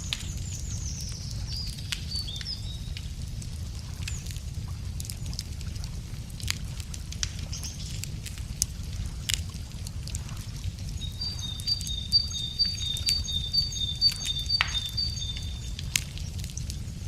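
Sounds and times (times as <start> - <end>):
campfire crackling and popping: 0.0 - 17.0
low steady rumble: 0.0 - 17.0
small bird singing two notes: 11.4 - 15.5.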